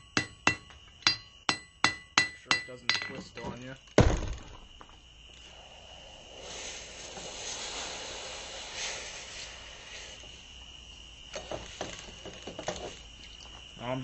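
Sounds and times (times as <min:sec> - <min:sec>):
light metal clinks: 0:00.0 - 0:03.8
faint high whine: 0:00.0 - 0:14.0
forge hissing: 0:04.4 - 0:14.0.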